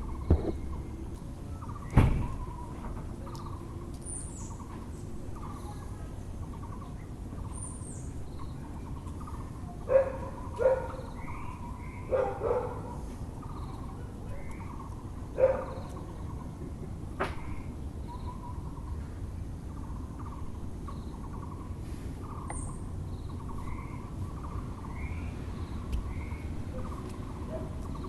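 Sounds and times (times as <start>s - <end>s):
small birds chirping: 0.0s - 28.0s
steady background noise: 0.0s - 28.0s
dog barking: 9.9s - 11.0s, 12.1s - 13.0s, 15.4s - 15.9s.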